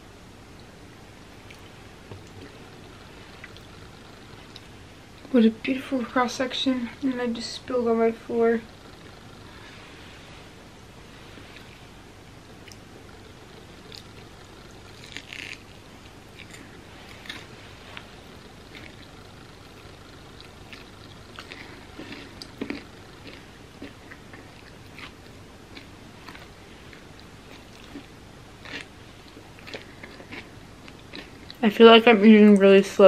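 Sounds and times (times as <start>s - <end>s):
faint steady hum: 0.0s - 33.0s
crunchy candy bar chewing: 13.8s - 17.6s, 18.7s - 31.6s.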